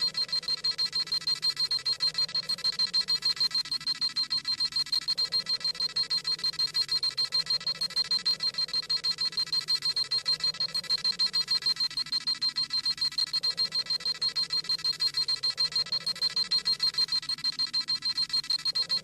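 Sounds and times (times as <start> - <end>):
rapid electronic beeping: 0.0 - 19.0.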